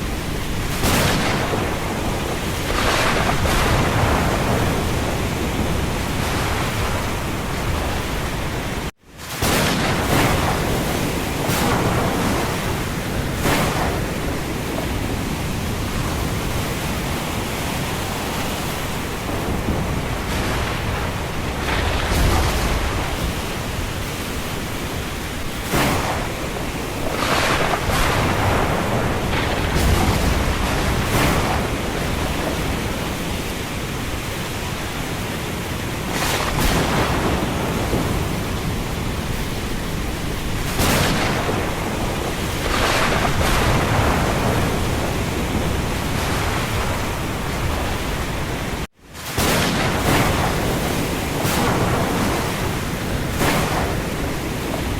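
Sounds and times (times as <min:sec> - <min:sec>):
sharp thunder cracks: 0:00.0 - 0:35.0, 0:36.0 - 0:54.9
low thunder rumbles: 0:00.0 - 0:54.9
wind and rain: 0:00.0 - 0:54.9.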